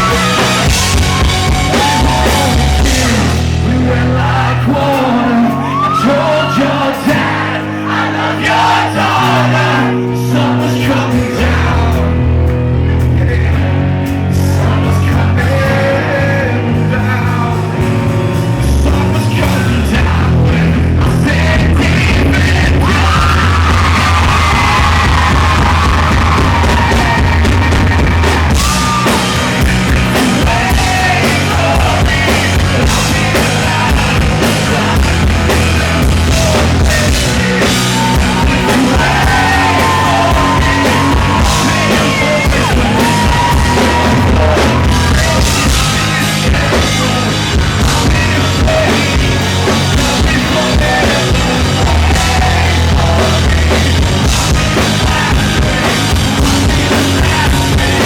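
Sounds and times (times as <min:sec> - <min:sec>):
live rock band playing: 0:00.0 - 0:58.0
person singing shouted vocal: 0:36.4 - 0:45.7.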